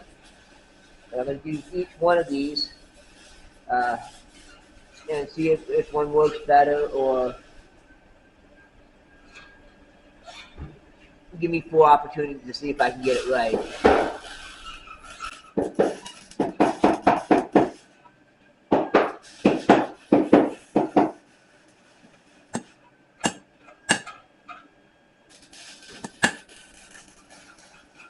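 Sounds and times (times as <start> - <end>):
hammer striking metal punch: 22.6 - 24.2.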